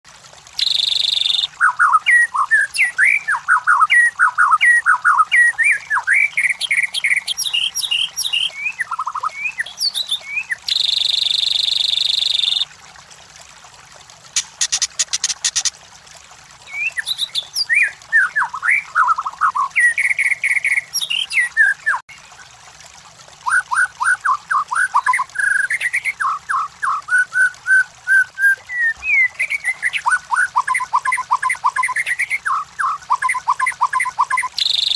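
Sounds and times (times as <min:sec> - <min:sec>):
bird singing whistles and chirps: 0:00.6 - 0:12.6, 0:24.7 - 0:34.9.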